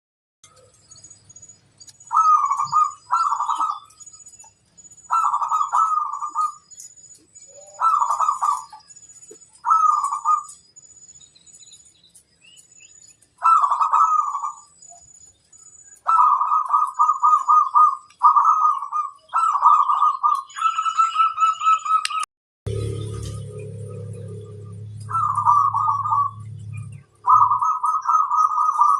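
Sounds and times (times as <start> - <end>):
faint high-pitched chirping: 0.4 - 28.9
dove cooing: 2.1 - 3.9, 5.1 - 6.6, 7.5 - 8.9, 9.6 - 10.6, 13.4 - 14.6, 16.0 - 22.1, 22.7 - 28.9.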